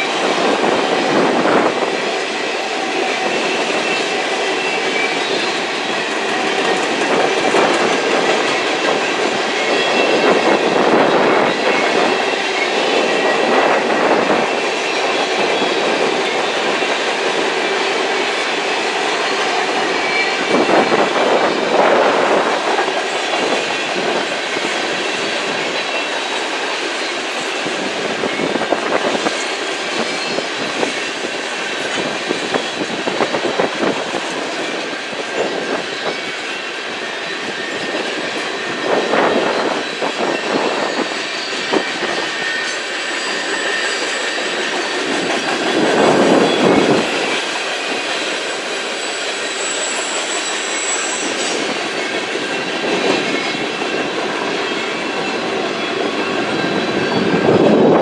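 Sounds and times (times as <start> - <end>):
thin high wheel squeal: 3.1 - 17.0, 34.4 - 54.1.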